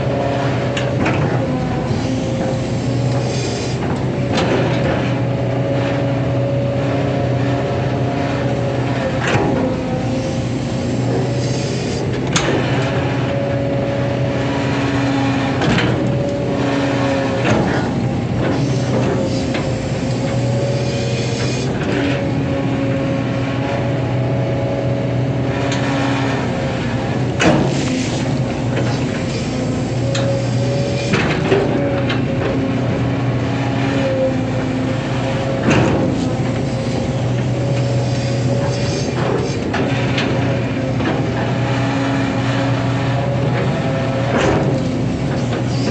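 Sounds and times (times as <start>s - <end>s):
excavator diesel engine running: 0.0s - 45.9s
machine clunks and knocks: 0.7s - 5.4s, 9.0s - 10.1s, 12.0s - 13.4s, 15.5s - 20.5s, 27.1s - 41.9s, 42.5s - 45.9s.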